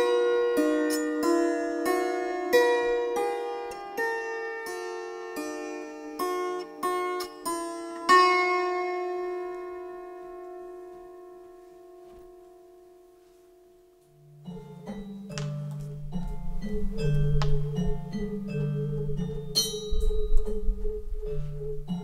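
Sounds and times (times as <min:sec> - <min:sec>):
plucked string instrument notes: 0:00.0 - 0:22.0
lower sound: 0:15.8 - 0:22.0.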